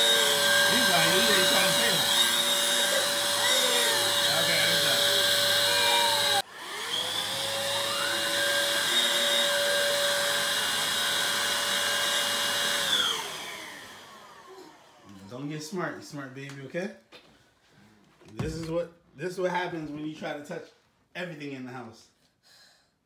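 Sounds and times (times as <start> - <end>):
vacuum cleaner motor whine: 0.0 - 15.2.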